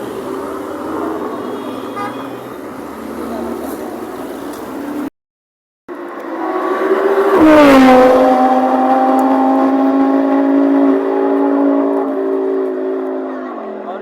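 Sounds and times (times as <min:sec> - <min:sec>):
car engine revving high: 0:06.2 - 0:14.0.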